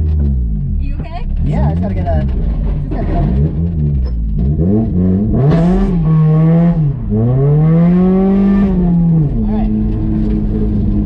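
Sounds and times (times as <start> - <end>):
car engine revving hard: 3.0 - 11.0.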